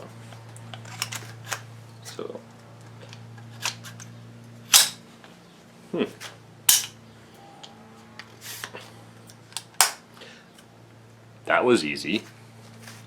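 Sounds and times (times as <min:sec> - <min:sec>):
low steady hum: 0:00.0 - 0:13.0
sharp metallic clicks of rifle parts: 0:00.7 - 0:01.7, 0:03.0 - 0:04.1, 0:04.7 - 0:05.0, 0:06.7 - 0:07.0, 0:09.3 - 0:10.1.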